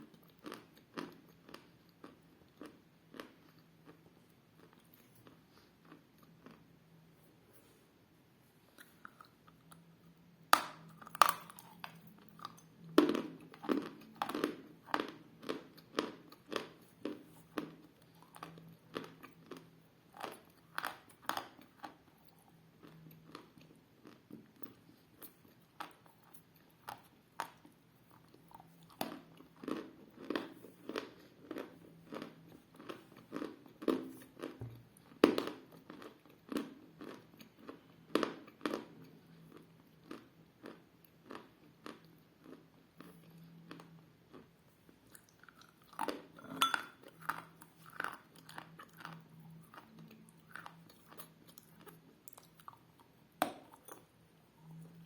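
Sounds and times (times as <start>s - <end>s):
crunching chews of hard clay: 10.5s - 54.1s.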